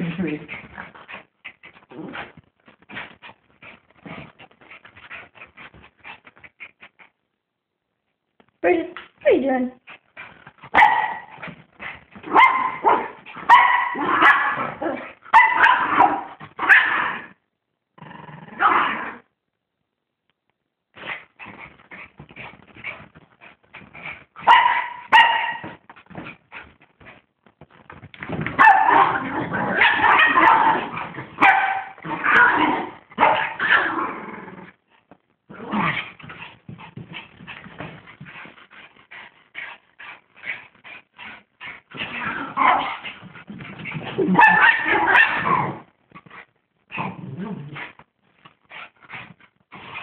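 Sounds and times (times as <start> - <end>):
dog growling and whimpering: 1.8 - 2.3, 46.9 - 47.9.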